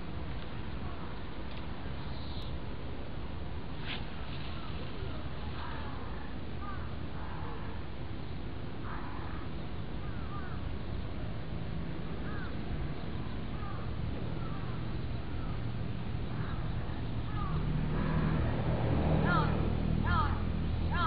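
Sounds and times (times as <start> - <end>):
steady low hum: 0.0 - 21.0
birds calling: 8.8 - 11.0, 12.2 - 18.2.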